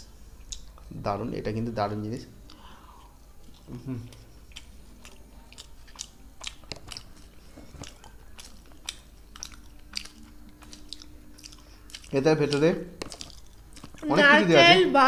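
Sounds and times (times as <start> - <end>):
people chewing crunchy food: 2.4 - 14.2.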